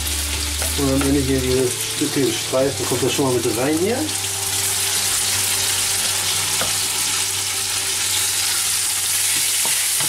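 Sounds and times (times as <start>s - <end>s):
chicken and onion sizzling: 0.0s - 10.0s.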